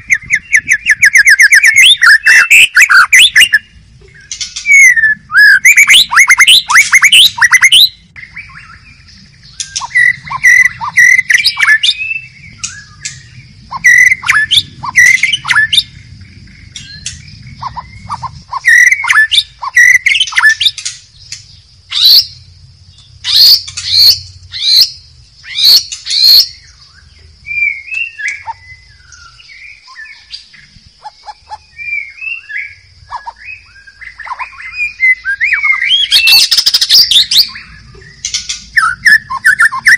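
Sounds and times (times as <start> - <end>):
bird singing whistles: 0.0 - 16.0, 16.7 - 22.4, 23.0 - 39.9.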